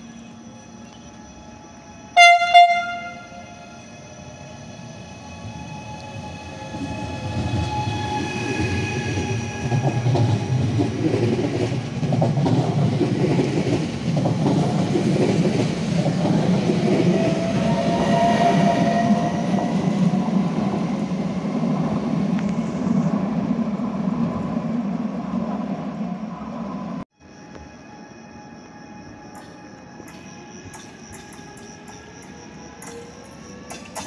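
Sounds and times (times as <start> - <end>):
train wheels clattering on rails: 7.3 - 19.7, 29.3 - 34.0.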